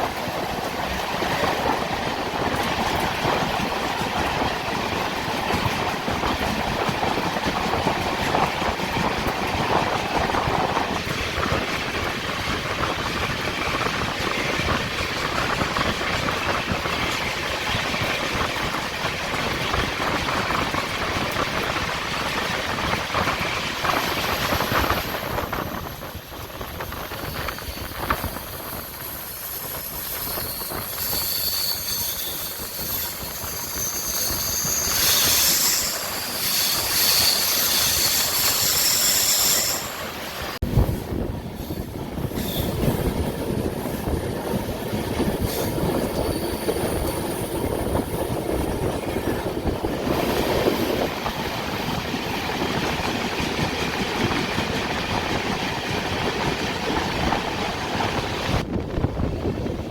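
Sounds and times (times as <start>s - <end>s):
train wheels rumbling on rails: 0.0s - 59.9s
high-pitched wheel squeal: 27.0s - 40.1s.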